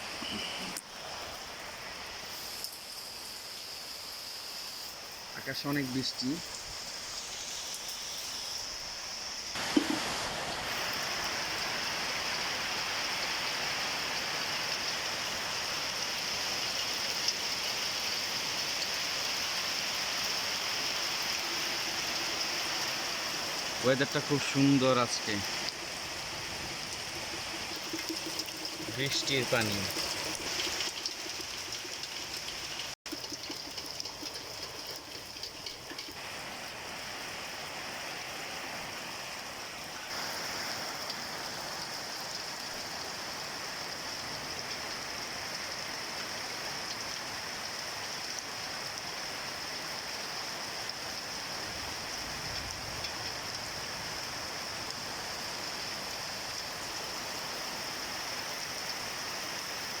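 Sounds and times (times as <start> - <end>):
running rainwater: 0.0 - 60.0
heavy rain falling: 9.5 - 33.2, 35.0 - 60.0.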